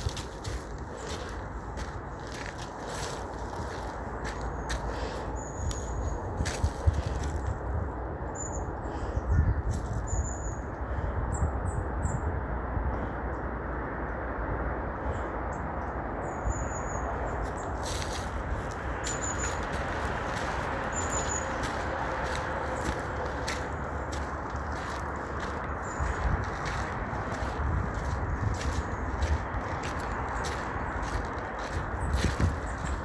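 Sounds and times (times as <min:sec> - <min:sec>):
footsteps crunching through dry leaves: 0:00.0 - 0:07.6, 0:17.4 - 0:33.0.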